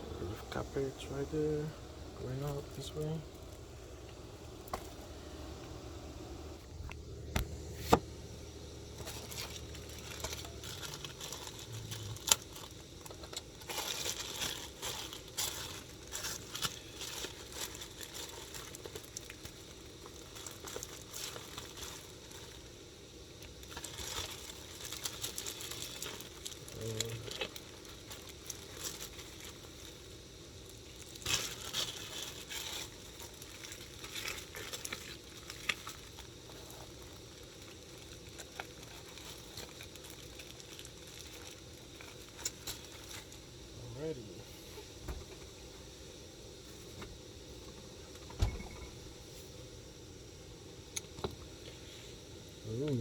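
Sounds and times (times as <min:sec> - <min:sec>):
plastic packaging crinkling: 0:00.6 - 0:03.7, 0:08.9 - 0:43.5.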